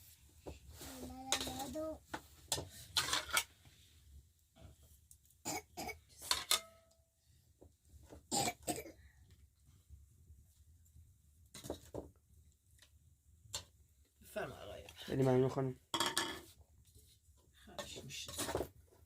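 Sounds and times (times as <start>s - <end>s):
dishes and cutlery clinking: 1.3s - 1.7s, 2.5s - 3.6s, 6.2s - 6.9s, 15.9s - 16.6s, 17.8s - 18.7s.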